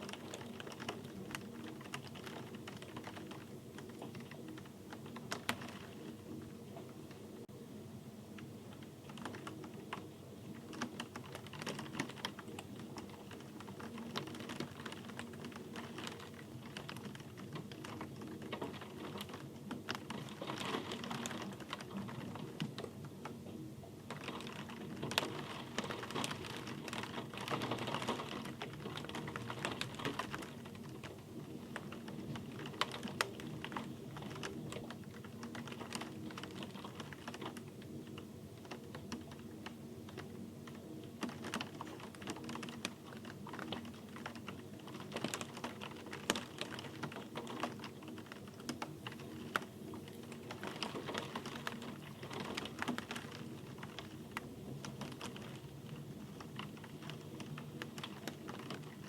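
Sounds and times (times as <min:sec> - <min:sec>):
rain falling: 0:00.0 - 0:07.5, 0:08.4 - 0:23.4, 0:24.0 - 0:59.0.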